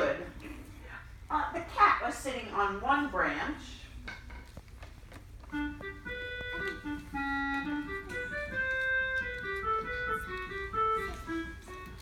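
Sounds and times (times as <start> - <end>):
organ-like keyboard music: 5.5 - 12.0.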